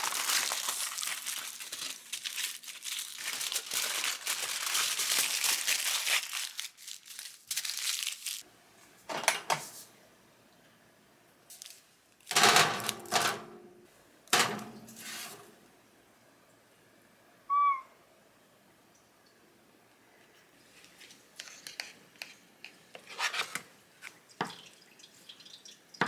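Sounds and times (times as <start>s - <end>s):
crinkling handling noise: 0.0s - 9.9s, 11.5s - 13.4s
high-pitched chirp: 17.5s - 18.0s.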